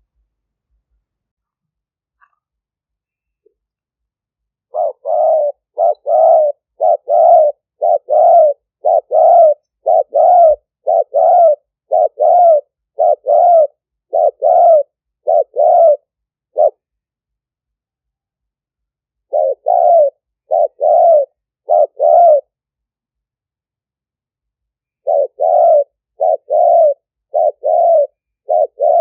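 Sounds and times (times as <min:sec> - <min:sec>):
dove cooing: 0:04.7 - 0:16.8, 0:19.3 - 0:22.6, 0:25.0 - 0:29.0.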